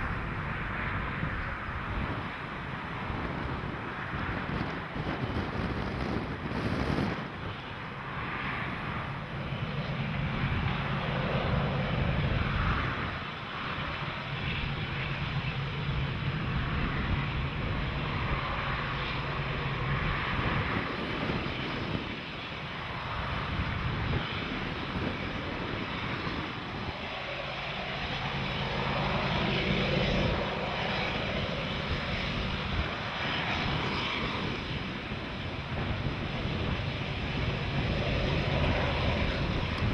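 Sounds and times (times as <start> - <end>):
diesel locomotive engines droning: 0.0 - 39.9.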